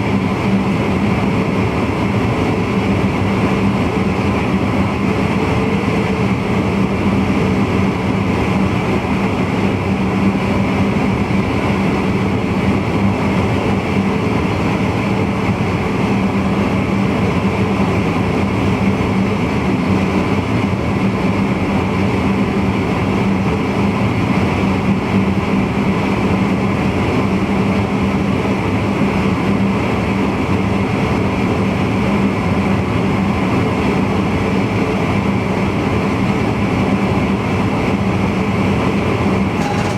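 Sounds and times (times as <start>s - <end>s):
electric train running: 37.9s - 39.9s.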